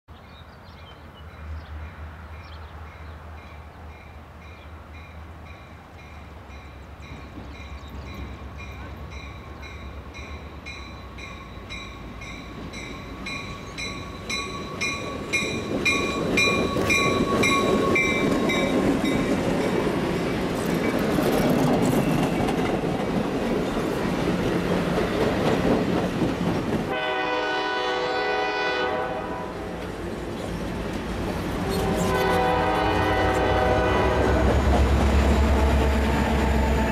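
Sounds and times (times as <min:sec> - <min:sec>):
train wheels on rail joints: 0:01.3 - 0:36.9
locomotive bell ringing: 0:04.0 - 0:19.9
train horn blast: 0:26.9 - 0:29.8, 0:31.6 - 0:36.9.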